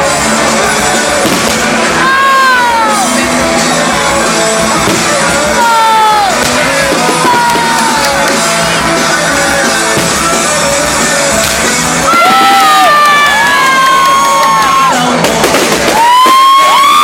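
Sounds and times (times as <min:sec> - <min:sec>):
person singing long held notes: 0:00.0 - 0:12.8
live rock band: 0:00.0 - 0:17.0.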